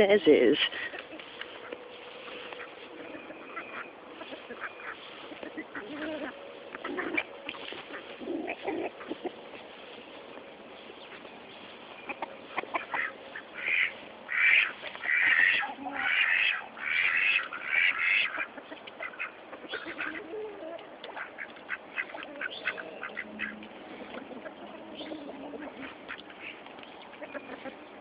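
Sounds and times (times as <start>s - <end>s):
ducks quacking: 0.3s - 10.2s, 11.0s - 28.0s.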